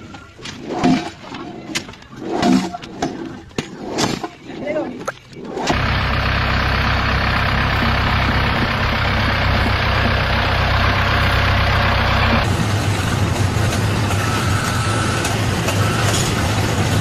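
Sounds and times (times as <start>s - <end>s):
heavy machine engine running: 5.6s - 17.0s.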